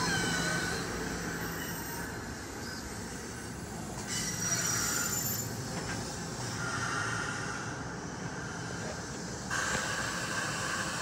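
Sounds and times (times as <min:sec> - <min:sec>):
train rolling by: 0:00.0 - 0:11.0
faint wheel squeals: 0:04.0 - 0:05.8.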